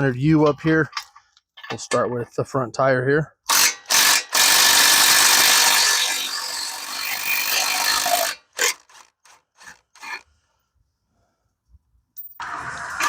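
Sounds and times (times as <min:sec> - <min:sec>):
power drill running: 0:03.5 - 0:10.2, 0:12.4 - 0:13.0.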